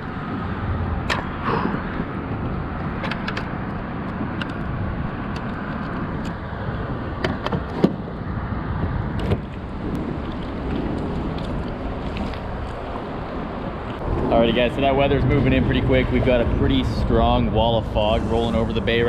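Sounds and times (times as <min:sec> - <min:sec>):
wind rumble on microphone: 0:00.0 - 0:19.0
water lapping at kayak: 0:08.8 - 0:14.1.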